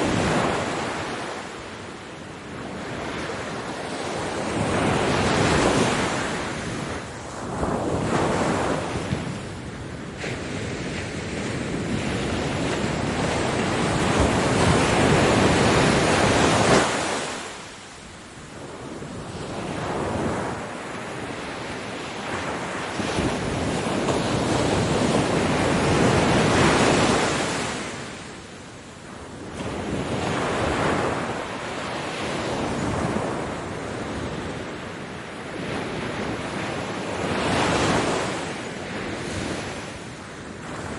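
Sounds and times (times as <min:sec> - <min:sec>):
ocean waves crashing on beach: 0:00.0 - 0:40.9
wind noise on microphone: 0:00.0 - 0:40.9.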